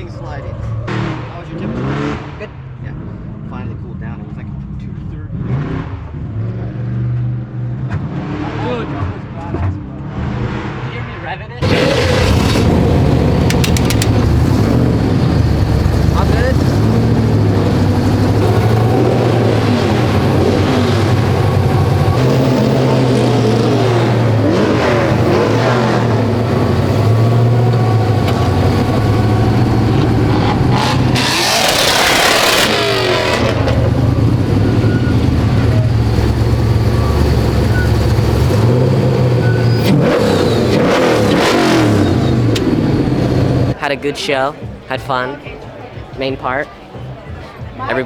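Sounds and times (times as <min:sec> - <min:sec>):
truck engine revving: 0:11.6 - 0:43.8.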